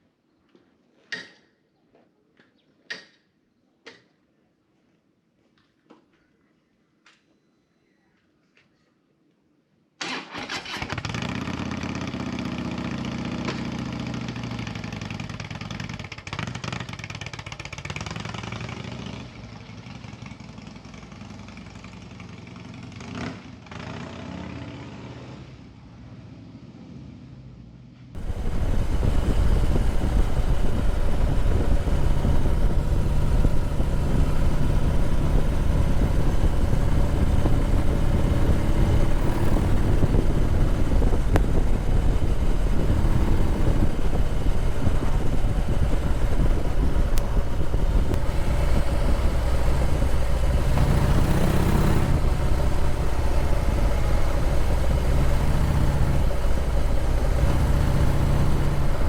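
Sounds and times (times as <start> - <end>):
motorcycle engine running: 28.2 - 59.0.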